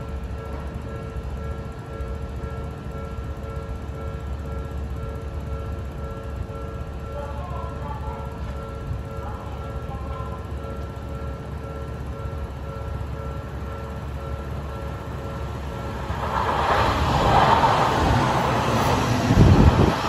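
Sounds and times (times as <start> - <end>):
electric train approaching: 0.0 - 20.0
level crossing bell ringing: 4.6 - 15.4.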